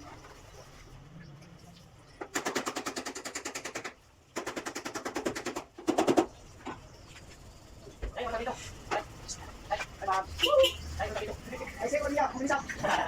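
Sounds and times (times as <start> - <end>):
power tool hammering rapidly: 2.3 - 6.4.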